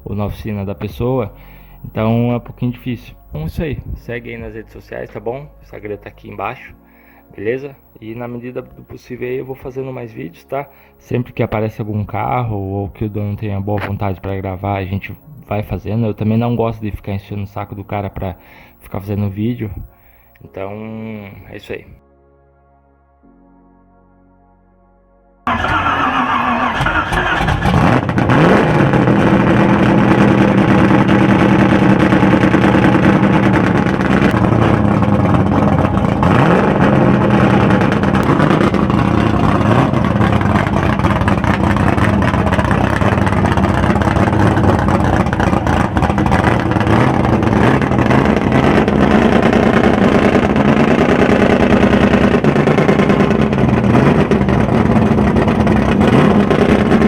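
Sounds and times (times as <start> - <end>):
car engine running loud: 0.0 - 4.4, 25.5 - 57.0.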